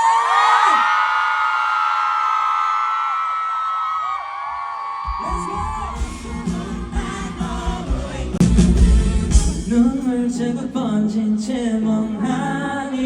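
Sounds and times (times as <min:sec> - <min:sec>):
heavy bass: 0:05.1 - 0:10.3
live band music with singing: 0:05.1 - 0:13.0.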